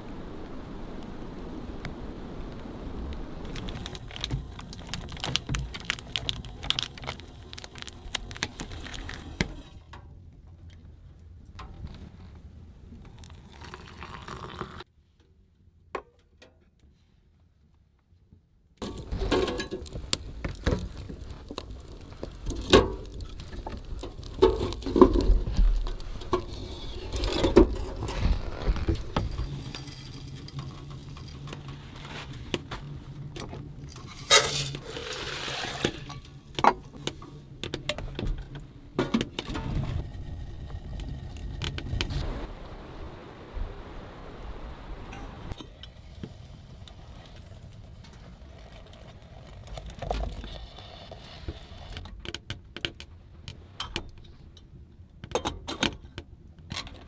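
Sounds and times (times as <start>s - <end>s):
objects being handled: 3.5s - 10.0s, 18.8s - 40.1s
low steady hum: 18.8s - 46.0s.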